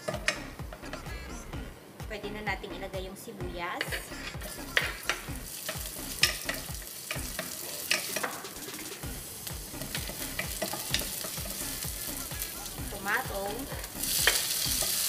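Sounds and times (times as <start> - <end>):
onion sizzling in oil: 3.8 - 15.0.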